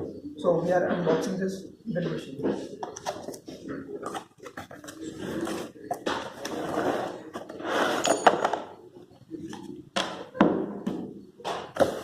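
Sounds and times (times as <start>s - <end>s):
cardboard scraping and rustling: 4.0s - 8.0s.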